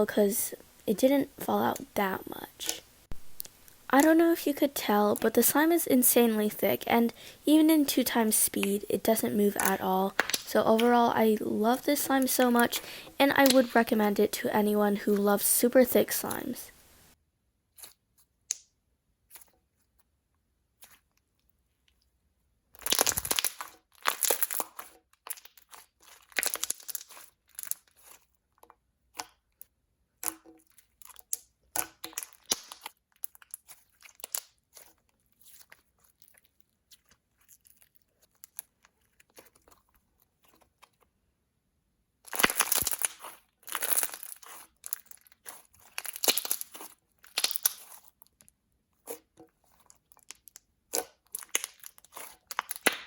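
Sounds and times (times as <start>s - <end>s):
hands squishing thick slime: 0.2s - 16.5s, 22.8s - 28.4s, 42.3s - 53.0s.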